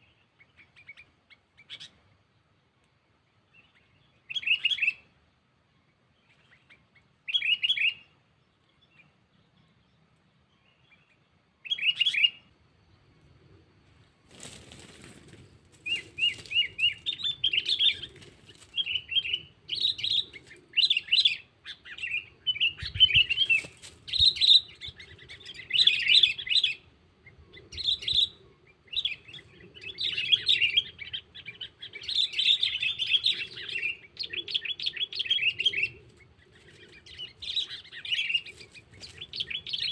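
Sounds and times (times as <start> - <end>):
rustling noise: 14.1 - 17.1, 23.3 - 24.2.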